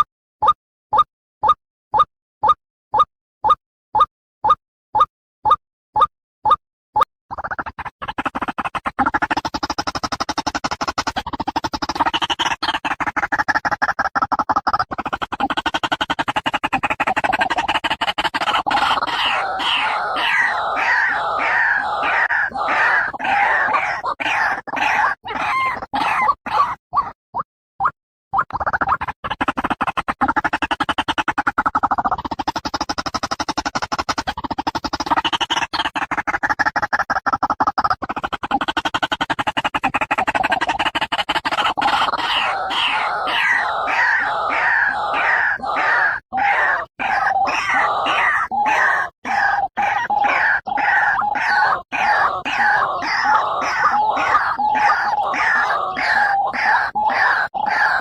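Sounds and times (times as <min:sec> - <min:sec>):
waterhen calling harsh notes: 0:18.4 - 0:26.8, 0:41.8 - 0:58.0.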